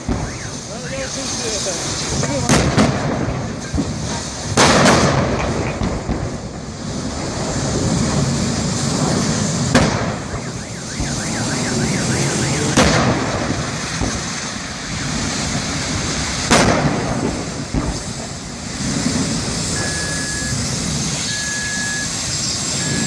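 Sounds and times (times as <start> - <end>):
car alarm warbling: 0.0 - 1.1, 10.2 - 12.8, 19.7 - 20.6, 21.2 - 23.0
explosion bangs: 0.0 - 21.3.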